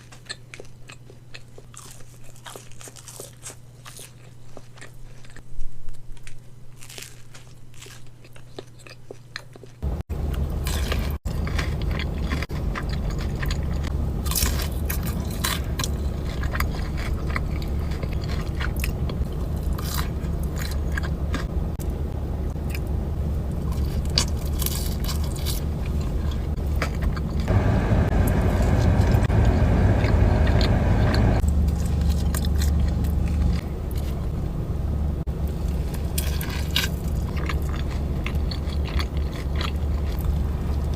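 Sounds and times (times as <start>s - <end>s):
crunchy bites of fried chicken: 0.0s - 21.5s, 23.6s - 27.5s, 35.7s - 40.9s
wet chewing: 0.0s - 22.9s, 23.6s - 34.3s, 35.6s - 40.9s
steady low hum: 9.8s - 40.9s.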